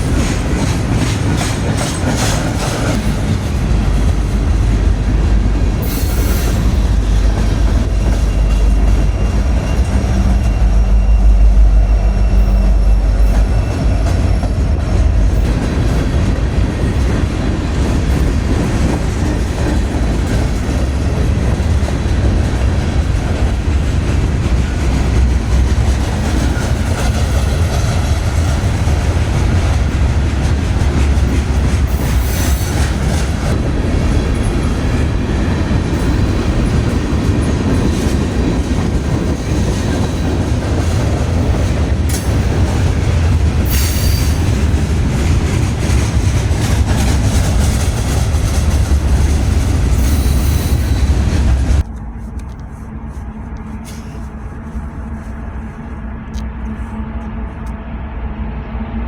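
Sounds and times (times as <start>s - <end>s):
freight train rumbling past: 0.0s - 59.0s
high wheel squeals: 5.8s - 14.5s.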